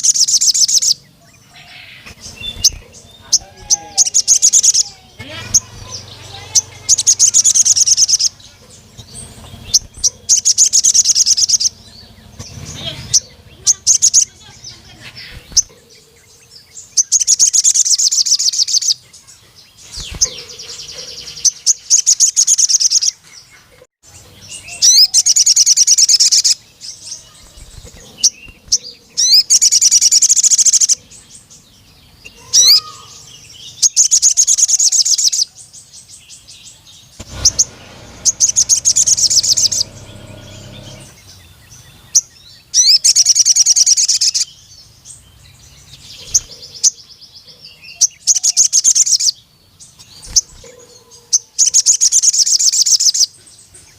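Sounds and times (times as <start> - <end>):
bird chattering trills: 0.0 - 31.6, 32.2 - 35.5, 37.0 - 44.6.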